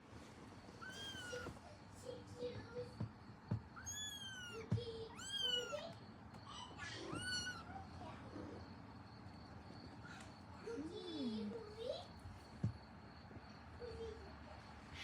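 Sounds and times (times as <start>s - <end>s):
kitten mewing: 6.9s - 7.7s.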